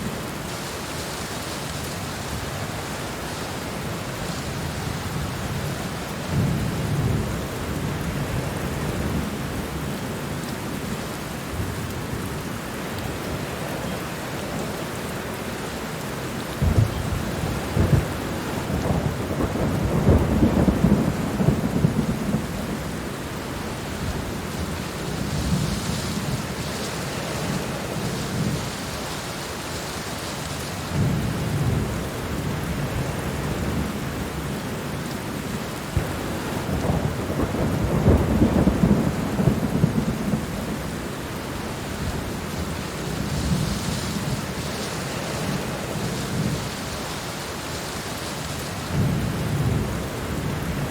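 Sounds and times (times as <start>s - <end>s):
heavy rain pouring: 0.0s - 50.9s
thunder rumbles: 16.5s - 30.2s, 30.8s - 34.2s, 35.9s - 50.9s
sharp thunder cracks: 16.6s - 22.5s.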